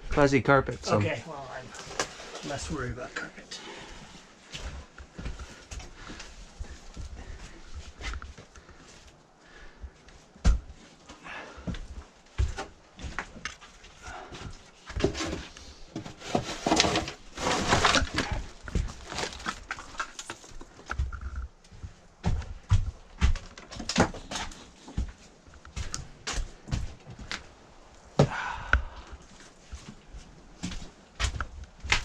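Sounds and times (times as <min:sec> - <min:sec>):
shovels scraping debris: 0:16.2 - 0:18.4.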